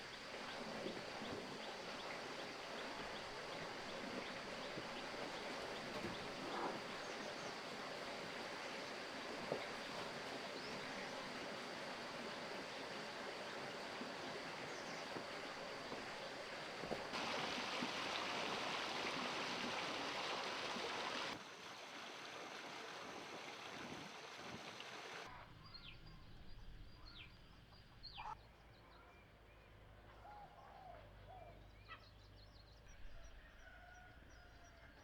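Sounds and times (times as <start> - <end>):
bird calls: 25.3 - 35.0.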